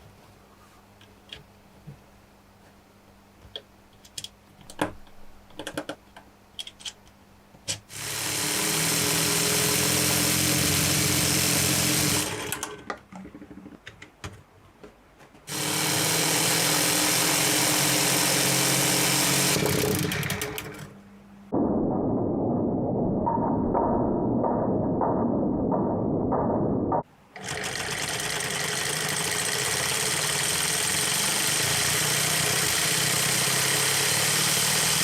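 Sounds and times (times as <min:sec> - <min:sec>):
plastic parts clicking: 0:03.4 - 0:07.9
mechanical whir of model engine: 0:07.9 - 0:12.8, 0:15.5 - 0:20.8, 0:27.4 - 0:35.0.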